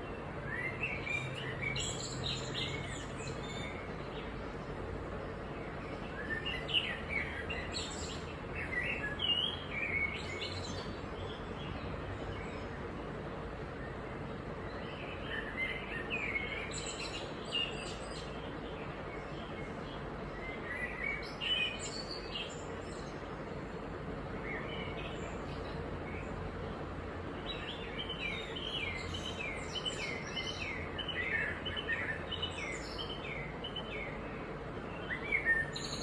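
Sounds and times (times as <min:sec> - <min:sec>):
birds chirping: 0:00.0 - 0:36.0
steady faint hum: 0:00.0 - 0:36.0.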